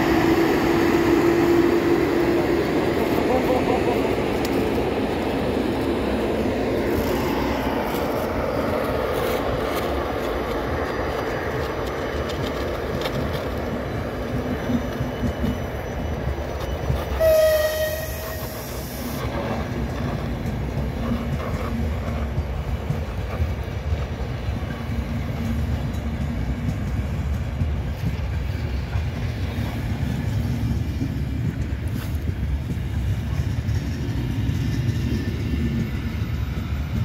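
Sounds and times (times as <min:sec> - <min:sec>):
train wheels rumbling on rails: 0:00.0 - 0:37.0
train horn: 0:17.1 - 0:18.8.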